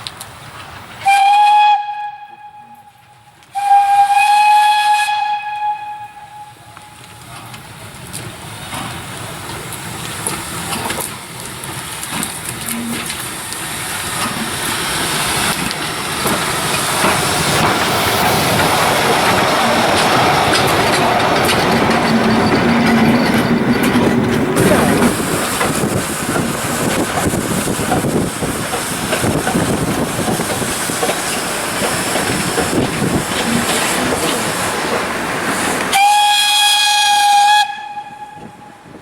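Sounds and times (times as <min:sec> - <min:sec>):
train running noise: 0:00.0 - 0:39.0
steam locomotive whistle: 0:01.0 - 0:07.0, 0:35.9 - 0:39.0.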